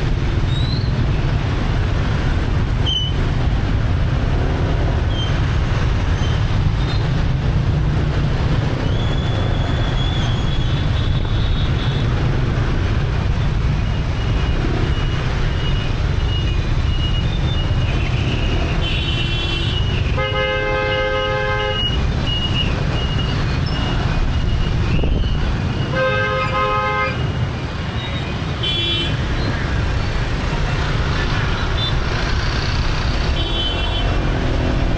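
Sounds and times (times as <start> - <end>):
traffic rumble: 0.0 - 34.9
vehicle horns honking: 18.0 - 22.6, 25.6 - 29.4, 33.3 - 34.2.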